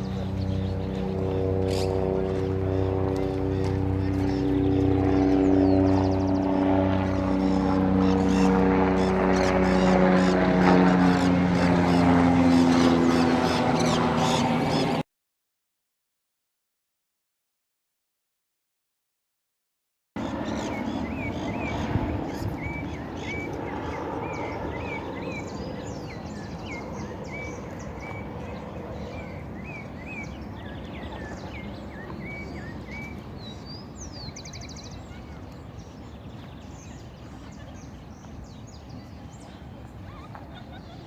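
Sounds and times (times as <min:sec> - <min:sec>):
birds chirping: 0:00.0 - 0:15.0, 0:20.2 - 0:41.0
low outdoor rumble: 0:00.0 - 0:15.0.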